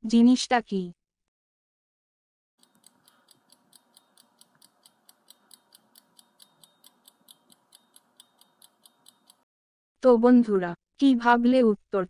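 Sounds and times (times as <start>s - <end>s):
countdown timer ticking: 2.6s - 9.4s.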